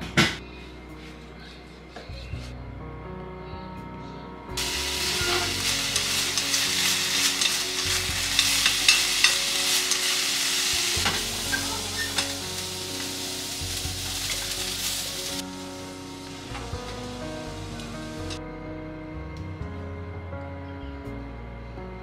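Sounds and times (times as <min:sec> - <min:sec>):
mushrooms sizzling in a pan: 0:04.6 - 0:18.4.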